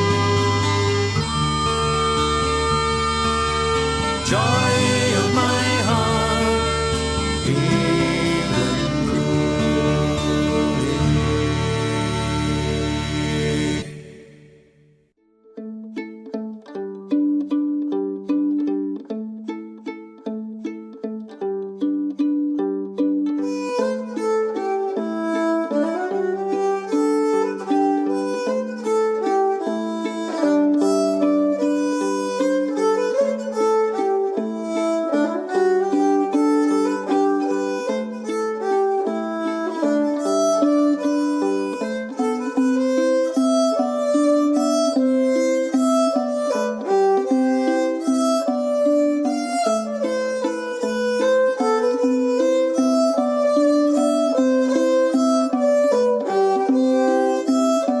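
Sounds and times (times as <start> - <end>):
fiddle playing quick melody: 0.0 - 14.6, 15.4 - 58.0.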